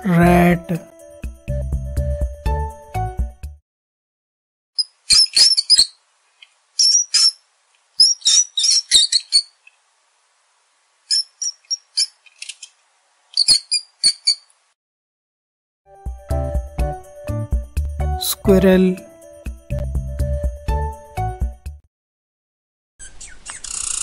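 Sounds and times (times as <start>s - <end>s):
rats squeaking: 4.8s - 6.0s, 6.8s - 7.4s, 8.0s - 9.8s, 11.1s - 14.5s, 23.0s - 24.0s.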